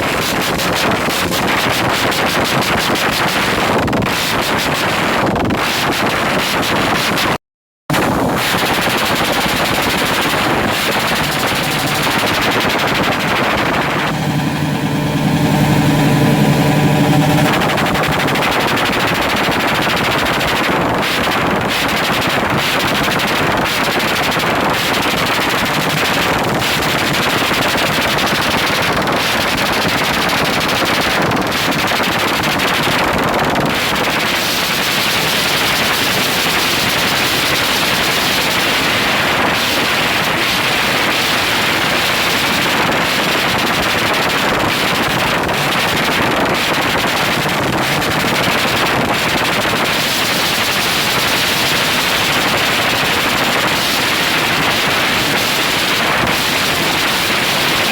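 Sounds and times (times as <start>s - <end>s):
motorcycle engine at rev limiter: 7.9s - 20.3s.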